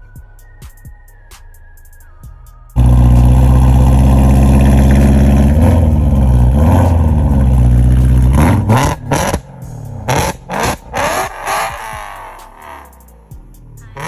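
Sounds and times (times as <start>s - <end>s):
car engine revving loud: 2.8s - 13.2s.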